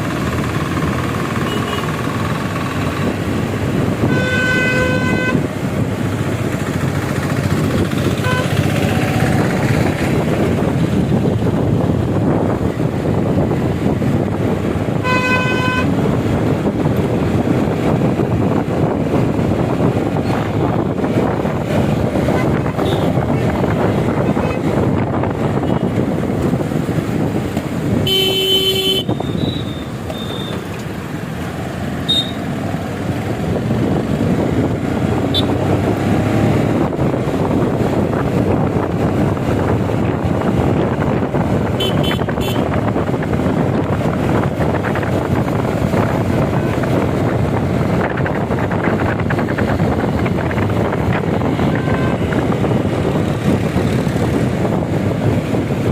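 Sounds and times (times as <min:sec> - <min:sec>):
wind and road noise: 0:00.0 - 0:55.9
vehicle horn honk: 0:01.4 - 0:01.9, 0:04.0 - 0:05.4, 0:08.2 - 0:08.6, 0:15.0 - 0:15.9, 0:22.4 - 0:23.2, 0:28.0 - 0:30.6, 0:32.1 - 0:32.4, 0:35.3 - 0:35.6, 0:41.8 - 0:42.7, 0:51.6 - 0:52.4.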